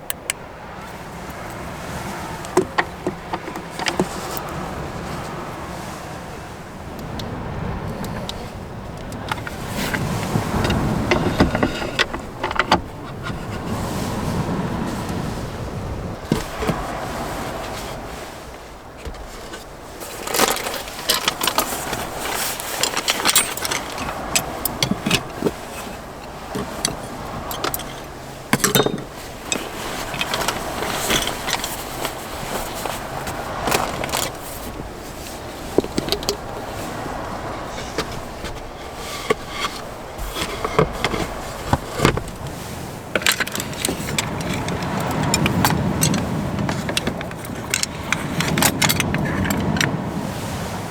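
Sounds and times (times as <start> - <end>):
utensils clinking and knocking: 2.4 - 4.6, 9.1 - 13.8, 20.0 - 50.0.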